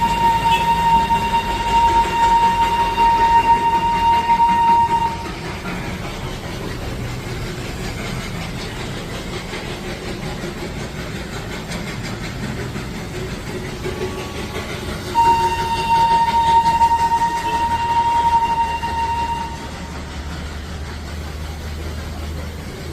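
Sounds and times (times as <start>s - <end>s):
train horn long blast: 0.0s - 5.4s, 15.1s - 19.7s
train rumbling past: 0.0s - 22.9s.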